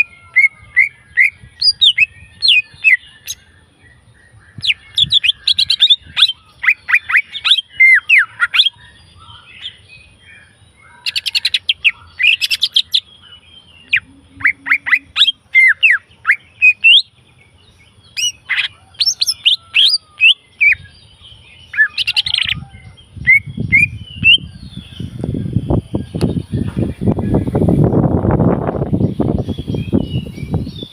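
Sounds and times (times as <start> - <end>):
bird chirping and whistling: 0.0 - 3.4, 4.5 - 9.8, 13.8 - 17.1, 18.1 - 21.0, 21.6 - 26.7, 29.3 - 30.9.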